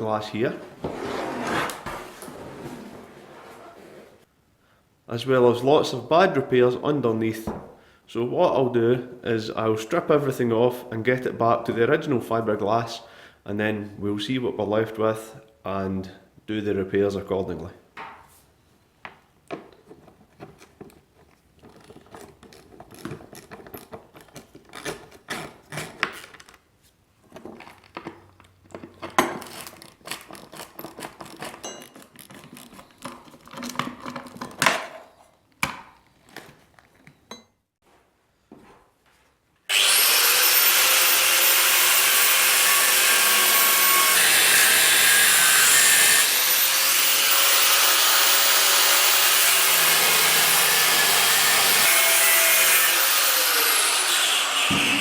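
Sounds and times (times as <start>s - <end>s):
hand tools clicking and scraping: 19.5s - 26.6s, 27.2s - 34.9s
power grinder grinding metal: 39.7s - 55.0s.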